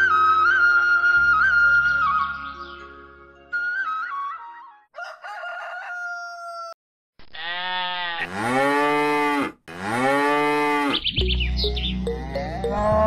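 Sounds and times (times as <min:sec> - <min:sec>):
cow mooing: 0:07.4 - 0:11.0, 0:12.1 - 0:13.0
high chirps: 0:11.0 - 0:13.0.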